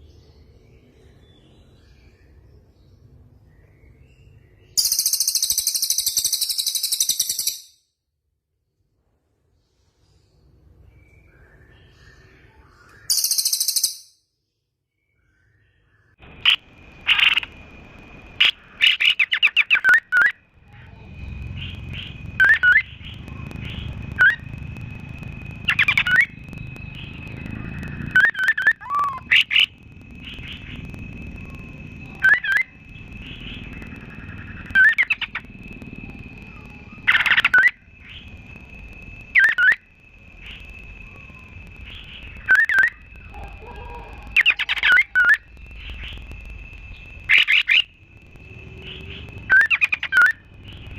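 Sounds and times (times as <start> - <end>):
songbird chirping: 0.0 - 7.7, 9.7 - 50.9
low rumble: 16.2 - 19.1, 20.4 - 50.9.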